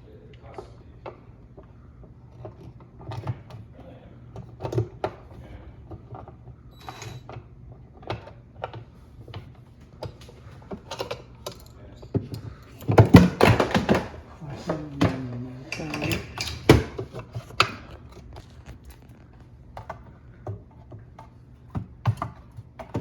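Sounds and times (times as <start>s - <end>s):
plastic parts clicking and rattling: 10.7s - 20.0s.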